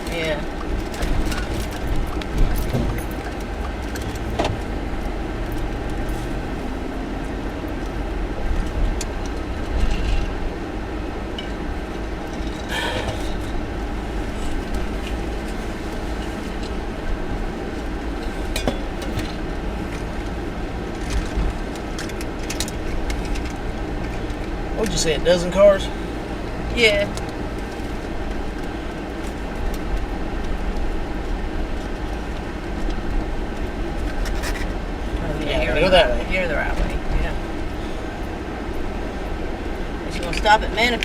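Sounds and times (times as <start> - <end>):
car road and engine rumble: 0.0 - 41.0.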